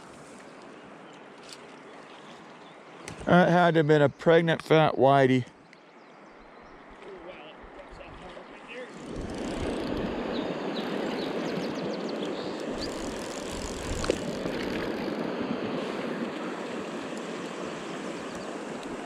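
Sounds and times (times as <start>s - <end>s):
river water rushing: 8.4s - 19.0s.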